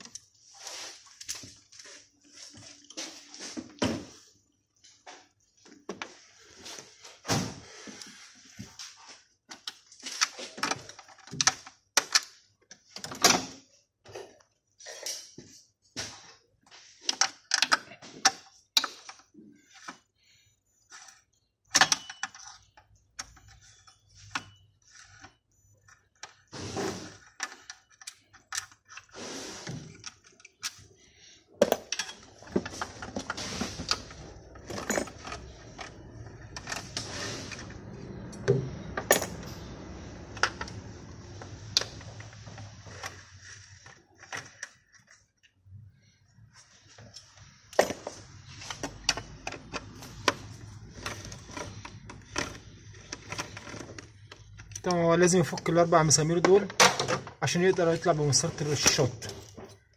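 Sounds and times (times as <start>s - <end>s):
hand tools clicking and clanking: 31.6s - 45.1s.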